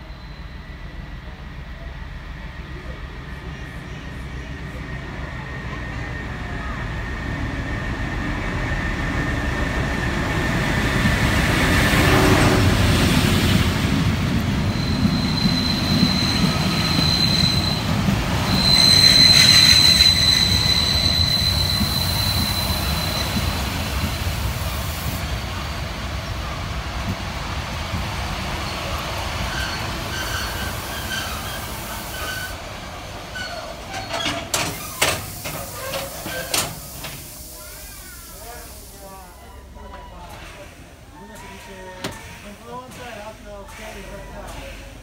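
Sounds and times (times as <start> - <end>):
train wheels squealing: 0.0 - 1.2, 2.8 - 26.1, 28.3 - 32.6, 33.2 - 40.6
train rumbling past: 0.0 - 45.0.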